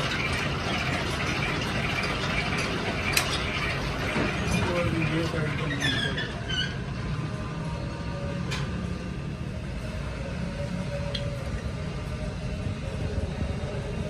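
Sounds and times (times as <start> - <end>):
workshop machinery rumbling: 0.0 - 14.0
faint hum: 6.8 - 14.0.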